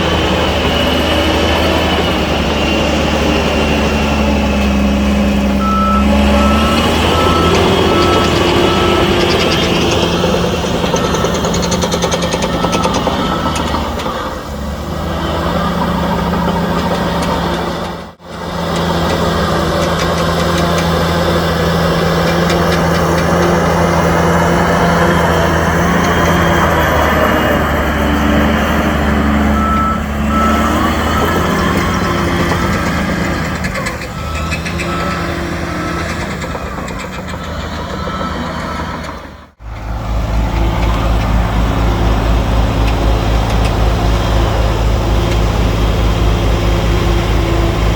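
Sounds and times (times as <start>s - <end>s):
heavy diesel engines running: 0.0s - 47.9s
reversing alarm beeping: 1.3s - 14.2s, 28.1s - 39.2s.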